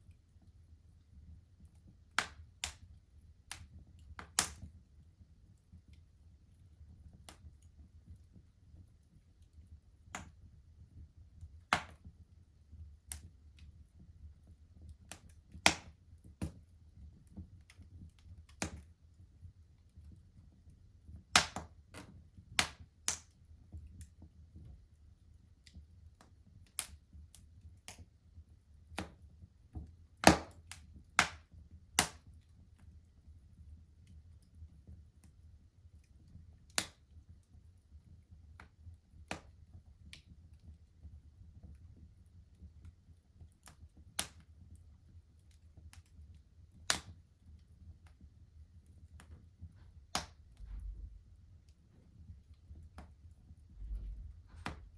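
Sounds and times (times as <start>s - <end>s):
wood fire crackling: 0.0s - 54.9s
fire pops and snaps: 1.6s - 4.8s, 7.0s - 10.5s, 11.4s - 12.2s, 13.0s - 13.8s, 14.4s - 19.0s, 21.2s - 24.8s, 25.6s - 28.1s, 28.8s - 33.0s, 36.0s - 37.5s, 38.4s - 40.7s, 43.4s - 44.7s, 45.4s - 54.9s
low rumble: 50.6s - 51.4s.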